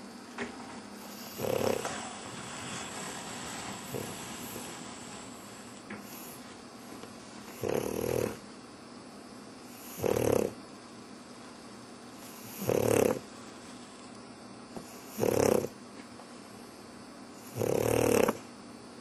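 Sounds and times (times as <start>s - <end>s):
dog snoring: 1.0s - 6.6s, 7.4s - 8.5s, 9.6s - 10.6s, 12.2s - 13.3s, 14.8s - 15.8s, 17.4s - 18.5s.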